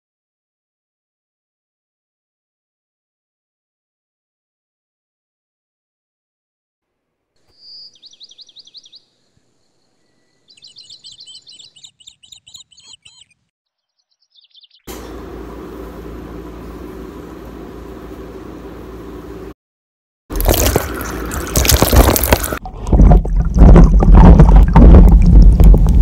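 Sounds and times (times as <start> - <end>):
songbird chirping trills: 7.4 - 14.9.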